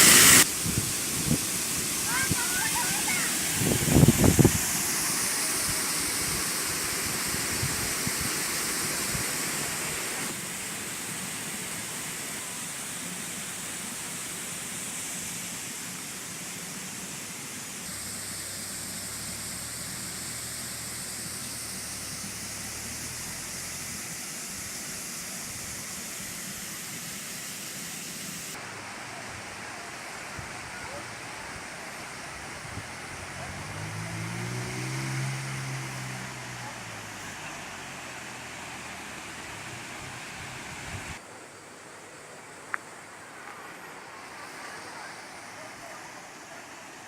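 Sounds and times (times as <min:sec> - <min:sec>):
waterfall pouring: 0:00.0 - 0:26.5.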